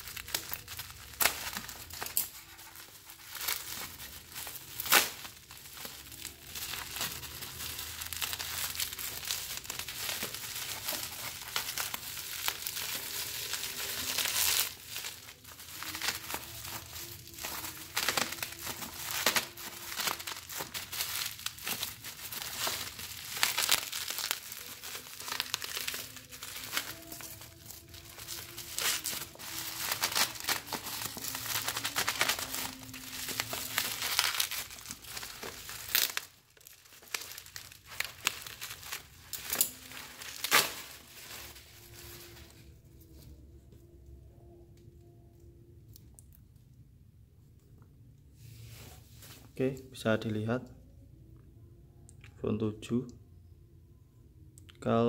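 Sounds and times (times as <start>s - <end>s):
packaging crinkling and rustling: 0.0s - 43.5s.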